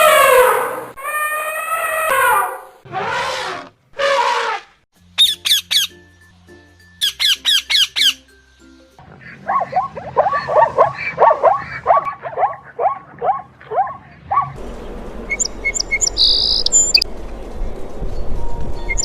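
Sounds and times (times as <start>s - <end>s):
high bird chirps: 5.2s - 6.0s, 7.0s - 8.3s, 15.3s - 17.1s.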